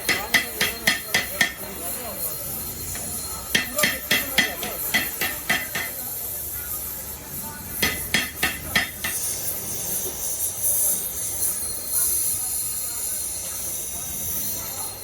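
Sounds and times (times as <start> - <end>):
hammer clanging on metal: 0.0 - 1.7, 2.9 - 6.0, 7.8 - 9.3.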